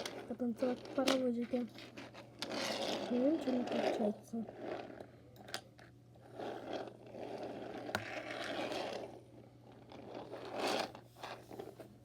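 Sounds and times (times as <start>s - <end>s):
toy train scraping and rattling: 0.0s - 5.0s, 9.9s - 11.6s.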